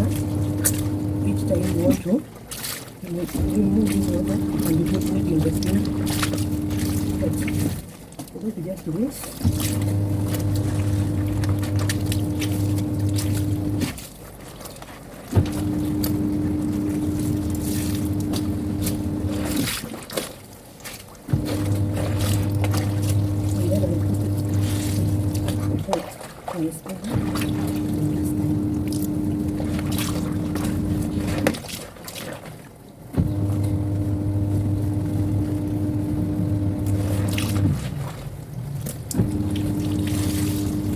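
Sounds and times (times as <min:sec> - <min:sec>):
washing machine motor running: 0:00.0 - 0:08.0, 0:09.2 - 0:14.0, 0:15.3 - 0:19.9, 0:21.3 - 0:31.7, 0:33.1 - 0:40.9
water churning: 0:00.0 - 0:40.9
washing machine click: 0:09.4 - 0:13.9, 0:15.4 - 0:19.6, 0:27.1 - 0:31.6, 0:39.1 - 0:40.9.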